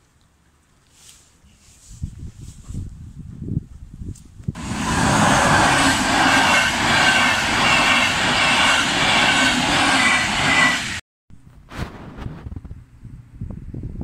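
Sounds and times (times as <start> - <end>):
train coaches rushing past: 4.6 - 11.0.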